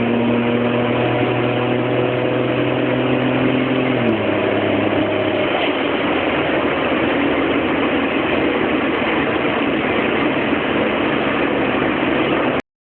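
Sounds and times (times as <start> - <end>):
vehicle engine running: 0.0 - 12.6.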